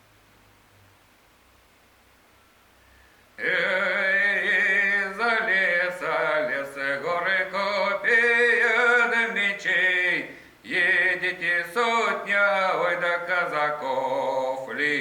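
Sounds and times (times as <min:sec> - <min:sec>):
man singing folk song with vibrato: 0:03.4 - 0:15.0.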